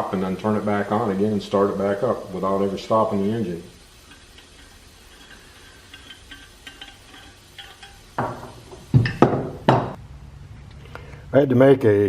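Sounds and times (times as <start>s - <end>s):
metal tools clinking: 4.1s - 8.4s.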